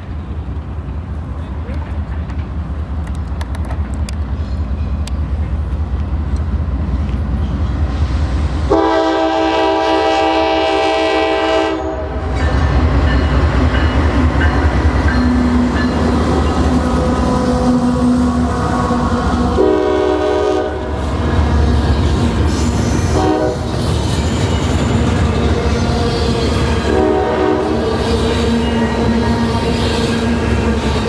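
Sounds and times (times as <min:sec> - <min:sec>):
freight train rumbling: 0:00.0 - 0:31.0
locomotive air horn: 0:08.7 - 0:12.2, 0:17.0 - 0:21.0, 0:22.5 - 0:23.8, 0:25.5 - 0:29.0.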